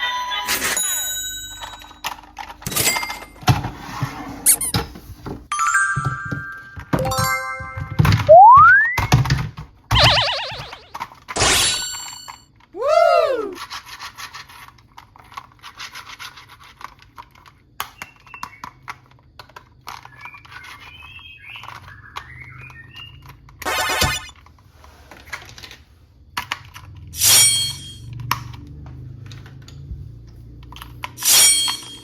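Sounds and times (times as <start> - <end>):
plastic toys clicking and rubbing: 1.5 - 2.7, 4.4 - 4.8, 10.8 - 11.4, 13.5 - 23.6, 24.3 - 27.1
springy rising and falling tone: 5.5 - 9.1, 9.9 - 12.3, 23.6 - 24.3.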